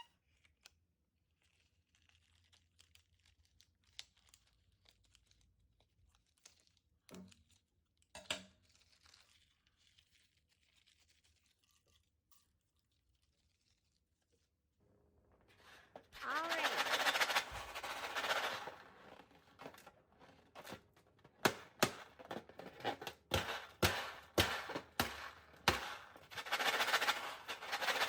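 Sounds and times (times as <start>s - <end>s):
crinkling handling noise: 0.2s - 28.0s.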